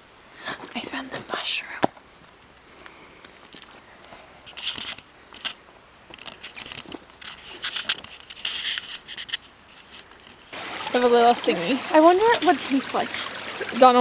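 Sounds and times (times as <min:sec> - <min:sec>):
rustling and crackling: 0:00.6 - 0:10.6
hissy scrapes and ticks: 0:02.0 - 0:10.5.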